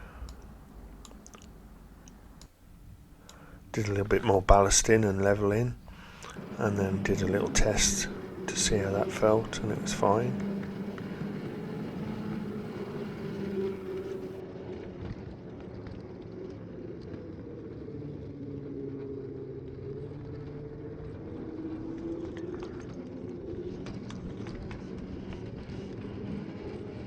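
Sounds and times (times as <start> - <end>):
wheels on rails: 0.0 - 14.4
electric motor whine: 3.2 - 14.4, 23.8 - 27.0.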